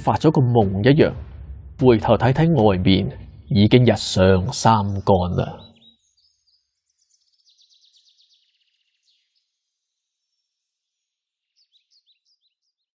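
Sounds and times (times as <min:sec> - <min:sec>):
high bird chirps: 0:04.6 - 0:09.2.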